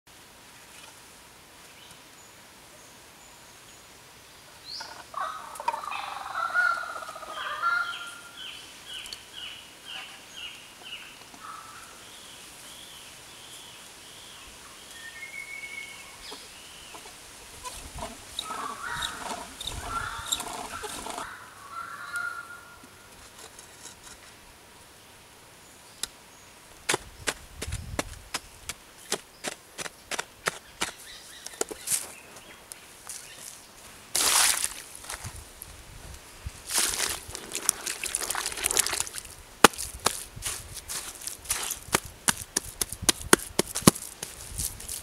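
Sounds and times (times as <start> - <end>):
forest birds calling: 1.6 - 23.2, 29.2 - 34.8
clay pieces knocking on dirt: 26.9 - 32.0, 36.7 - 40.3, 41.0 - 45.0.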